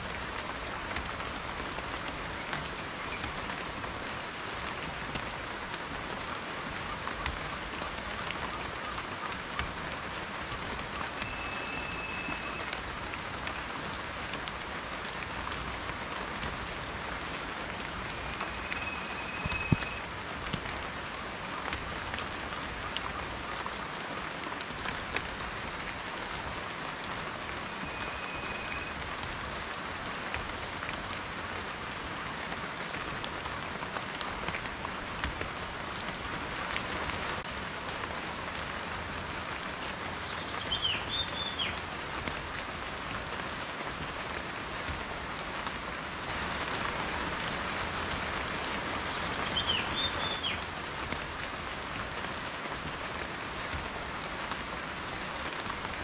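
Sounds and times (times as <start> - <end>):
rain drops ticking: 0.0 - 56.0
high level whistles: 11.2 - 12.7, 18.1 - 20.0.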